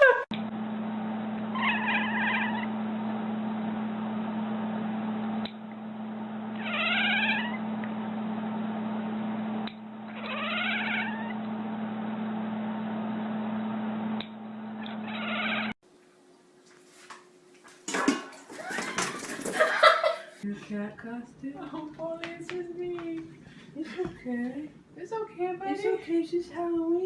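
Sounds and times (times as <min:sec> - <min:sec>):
cat meowing: 0:01.6 - 0:02.7, 0:06.6 - 0:07.6, 0:10.1 - 0:11.4, 0:15.0 - 0:15.7
low hum and hiss: 0:19.6 - 0:27.0.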